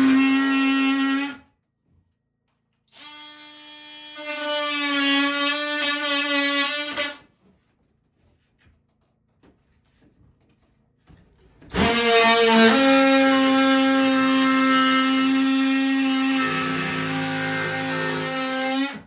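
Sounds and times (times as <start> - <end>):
power drill motor whining: 0.0 - 1.3, 11.7 - 19.0.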